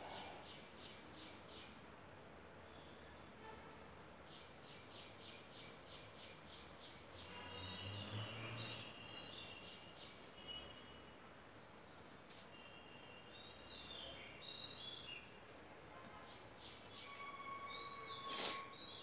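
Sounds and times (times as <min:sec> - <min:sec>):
birds chirping: 0:04.3 - 0:15.5.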